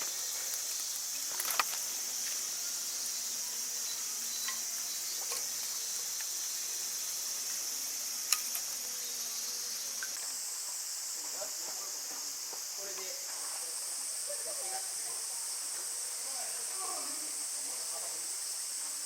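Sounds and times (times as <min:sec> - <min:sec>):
campfire pops and crackles: 0:00.0 - 0:02.4, 0:08.2 - 0:08.8
insects chirring: 0:00.0 - 0:19.0.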